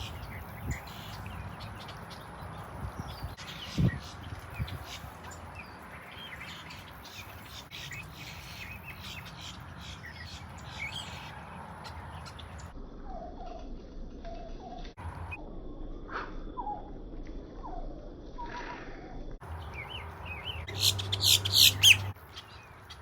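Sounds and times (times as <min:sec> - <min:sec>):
lower-pitched bird calls: 0:00.0 - 0:02.2, 0:19.5 - 0:22.6
wild birds chirping: 0:00.0 - 0:13.4, 0:19.4 - 0:23.0.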